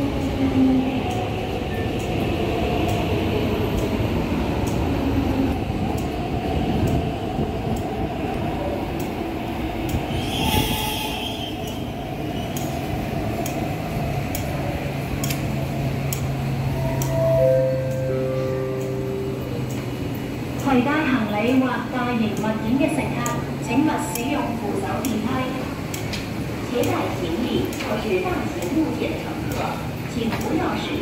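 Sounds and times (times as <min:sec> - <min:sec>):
train wheels rumbling on rail: 0:00.0 - 0:31.0
sharp clicks: 0:15.2 - 0:16.3.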